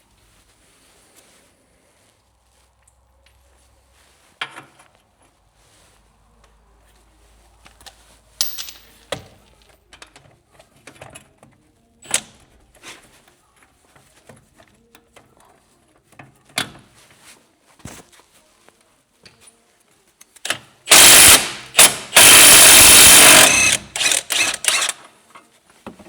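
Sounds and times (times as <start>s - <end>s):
hand tools clicking and knocking: 20.5s - 25.0s.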